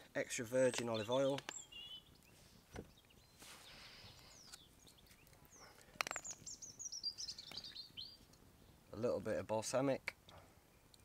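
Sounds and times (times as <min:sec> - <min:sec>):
songbird chirping: 0:00.4 - 0:09.4, 0:10.1 - 0:11.0.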